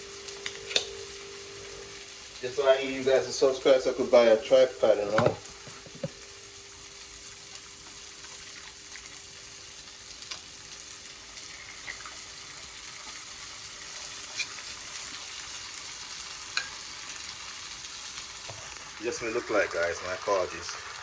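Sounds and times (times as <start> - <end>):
faint hum: 0.0 - 11.8
food sizzling in a pan: 0.0 - 21.0.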